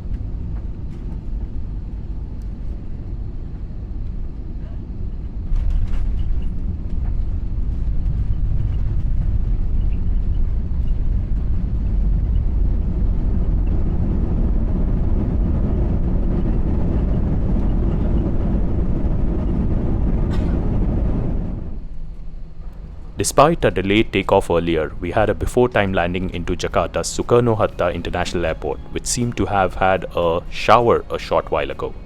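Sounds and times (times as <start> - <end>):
airliner rumbling on runway: 0.0 - 32.0.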